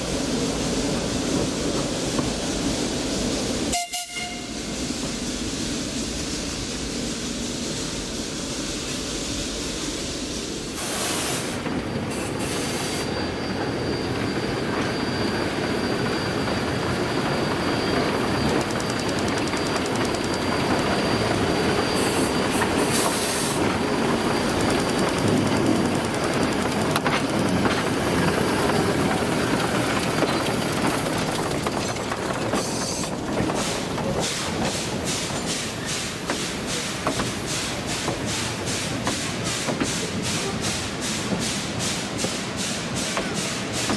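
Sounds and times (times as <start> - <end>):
train rolling rumble: 0.0 - 43.9
faint high wheel squeal: 11.1 - 34.7
wheels clicking over rail joints: 18.4 - 20.8, 22.5 - 40.6.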